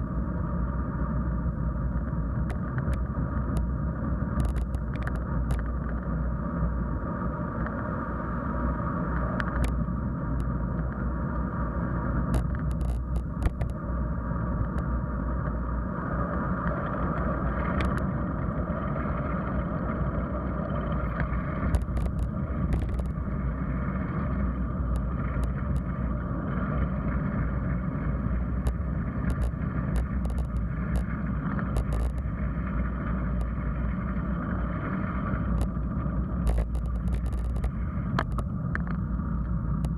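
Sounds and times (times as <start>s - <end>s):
bicycle tyre noise: 2.4s - 39.9s
sharp clicks and rattles: 4.4s - 6.0s, 9.4s - 9.8s, 12.3s - 13.8s, 21.2s - 23.2s, 28.6s - 32.4s, 35.4s - 35.8s, 36.4s - 39.0s.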